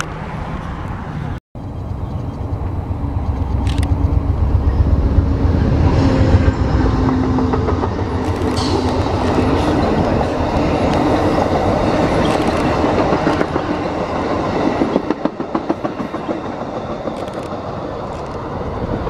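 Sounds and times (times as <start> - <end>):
train rumbling along track: 0.0 - 19.0
wheels clicking over rail joints: 7.1 - 19.0.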